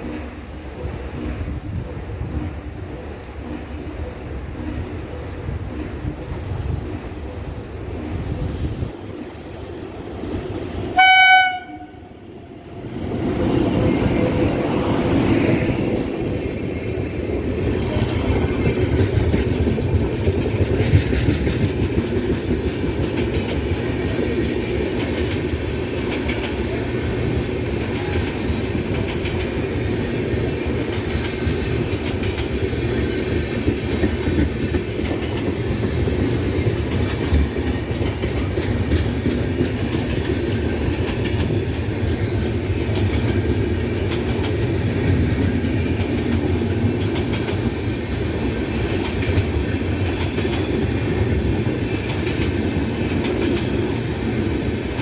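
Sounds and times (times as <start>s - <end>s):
train wheels rumbling: 0.0s - 55.0s
wheels clicking over rail joints: 17.4s - 29.6s, 30.6s - 55.0s.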